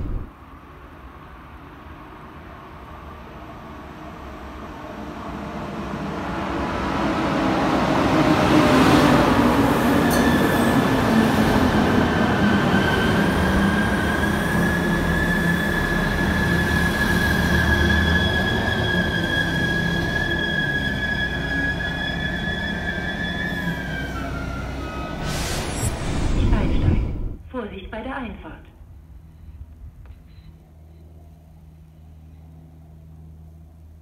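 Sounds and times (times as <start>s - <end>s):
train pulling in: 0.0s - 27.4s
high-pitched brake squeal: 12.7s - 26.2s.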